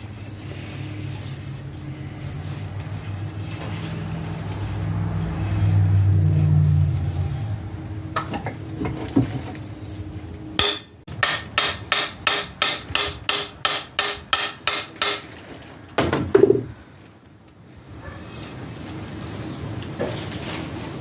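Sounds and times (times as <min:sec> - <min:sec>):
hammer striking metal: 0:10.6 - 0:15.3.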